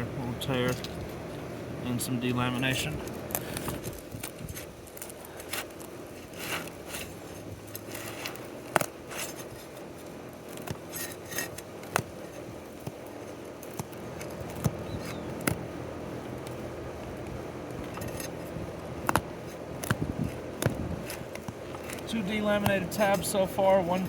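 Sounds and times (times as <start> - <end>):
shingles tearing: 3.0 - 15.5
shingles scraping: 3.0 - 15.6, 17.7 - 24.0.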